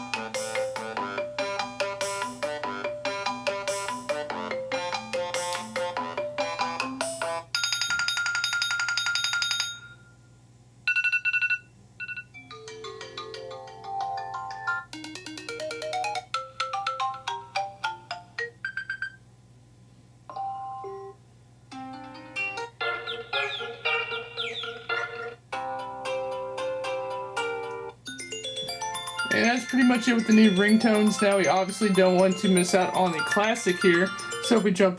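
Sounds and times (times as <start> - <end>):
phone ringtone snippets: 28.1 - 34.8.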